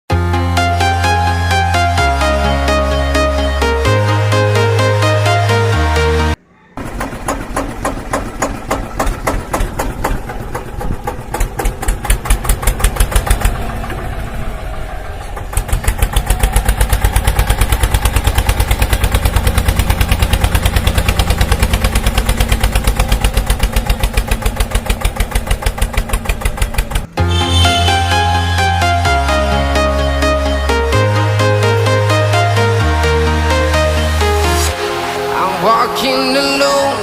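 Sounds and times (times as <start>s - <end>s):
tractor engine chugging: 6.8s - 32.7s.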